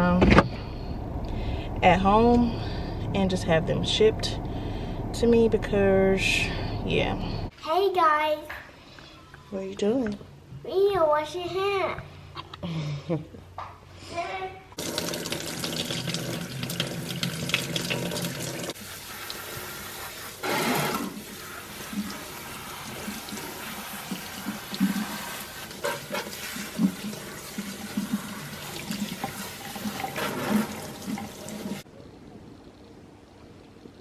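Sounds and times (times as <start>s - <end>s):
water running from faucet into sink: 14.8s - 31.8s
water splashing: 14.8s - 31.8s.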